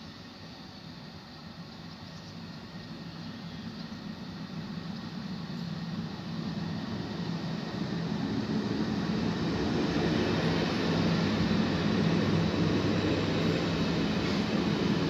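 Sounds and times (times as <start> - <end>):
electric train hum: 0.0 - 15.0.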